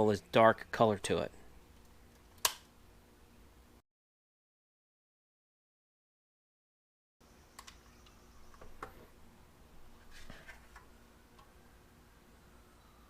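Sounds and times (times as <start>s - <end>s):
faint background hum: 0.0s - 3.8s, 7.2s - 13.0s.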